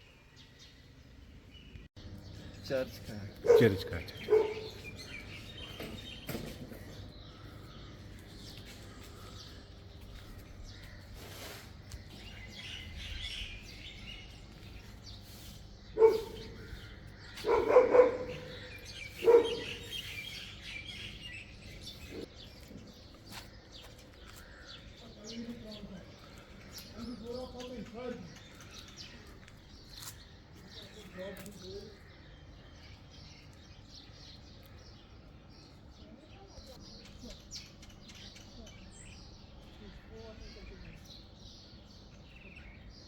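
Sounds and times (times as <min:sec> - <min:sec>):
birds chirping faintly: 0:00.0 - 0:43.0
dog barking: 0:03.4 - 0:04.9, 0:16.0 - 0:16.7, 0:17.4 - 0:20.0.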